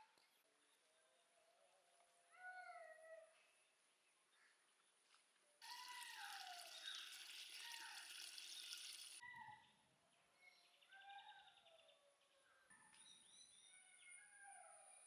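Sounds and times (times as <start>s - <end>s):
birds calling with falling whistles: 5.7s - 9.1s.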